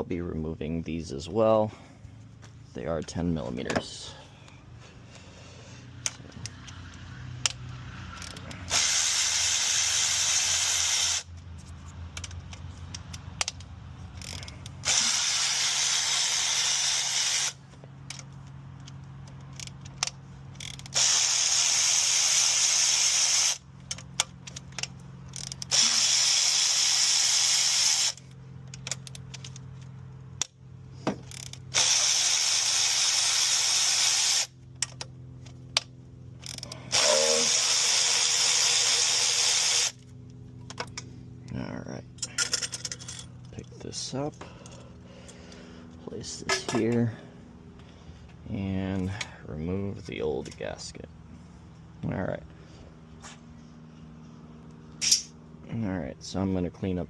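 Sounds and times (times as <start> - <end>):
ratchet wrench ratcheting: 6.0 - 11.4, 12.1 - 35.1, 35.8 - 40.0
tool and bolts clinking: 42.1 - 44.9, 46.4 - 47.2, 55.0 - 55.4.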